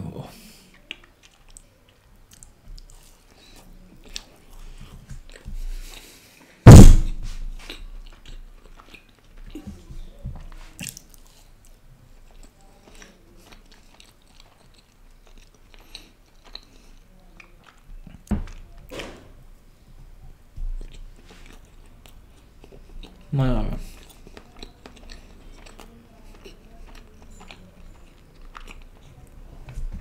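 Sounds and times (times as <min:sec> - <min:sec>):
man biting and chewing: 0:02.3 - 0:09.6, 0:23.9 - 0:29.2
loud sudden thump: 0:06.7 - 0:07.5.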